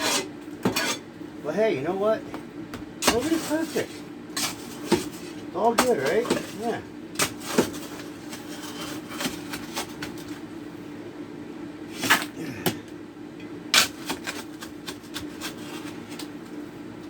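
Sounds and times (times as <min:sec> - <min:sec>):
shovel scraping dirt and rock: 0:03.0 - 0:09.9.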